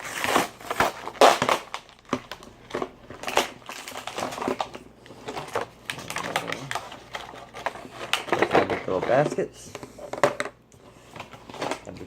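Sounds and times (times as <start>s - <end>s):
packaging crunching and crackling: 0.0s - 9.4s.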